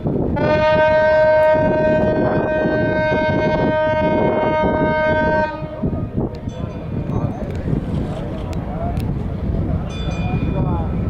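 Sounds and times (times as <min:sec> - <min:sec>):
harbour background noise: 0:00.0 - 0:11.0
ship's horn blast: 0:00.3 - 0:06.3.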